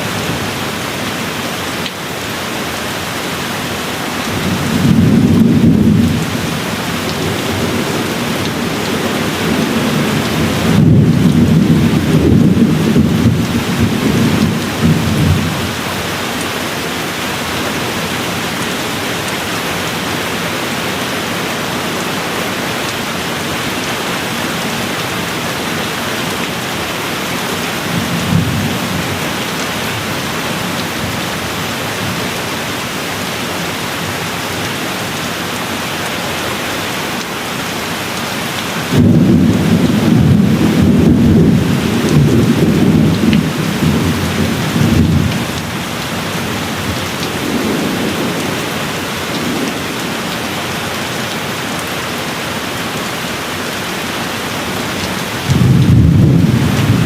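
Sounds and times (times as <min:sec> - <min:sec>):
steady rain: 0:00.0 - 0:57.0
thunder rumbling: 0:04.3 - 0:18.7, 0:27.7 - 0:31.2, 0:38.9 - 0:50.6, 0:55.4 - 0:57.0.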